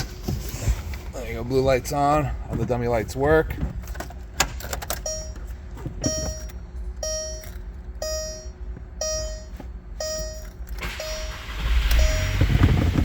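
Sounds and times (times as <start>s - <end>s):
car engine cranking and rumbling: 0.0s - 13.0s
dashboard warning chime beeping: 4.8s - 13.0s.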